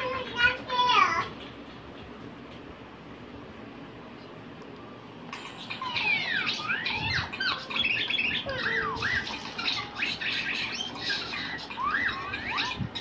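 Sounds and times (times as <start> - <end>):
small birds chirping and squawking: 5.4 - 13.0.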